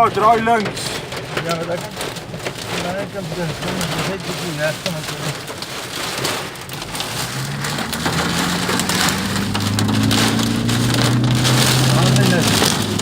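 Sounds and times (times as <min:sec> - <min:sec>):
car engine hum: 0:00.0 - 0:13.0
heavy rain drumming on a car: 0:00.0 - 0:13.0.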